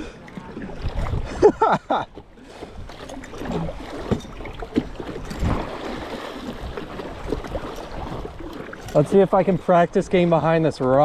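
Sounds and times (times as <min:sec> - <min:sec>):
river water splashing and rushing: 0:00.0 - 0:11.0.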